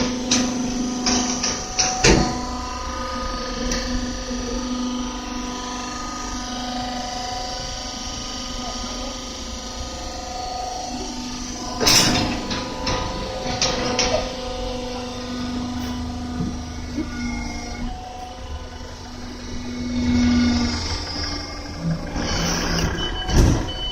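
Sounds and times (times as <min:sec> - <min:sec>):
machine hum with whine: 0:00.0 - 0:23.9
loud clank: 0:11.7 - 0:14.5.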